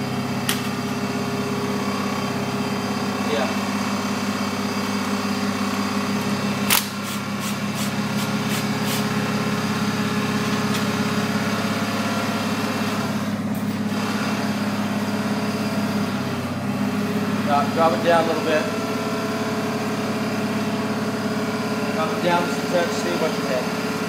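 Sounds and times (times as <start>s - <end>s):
engine humming steadily: 0.0s - 24.0s
sharp metallic click: 6.6s - 7.2s.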